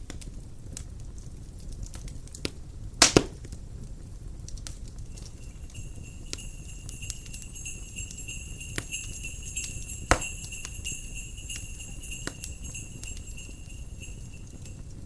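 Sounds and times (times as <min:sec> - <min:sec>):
crackling fire with sharp pops: 0:00.0 - 0:15.0
small sleigh bells jingling: 0:05.0 - 0:15.0.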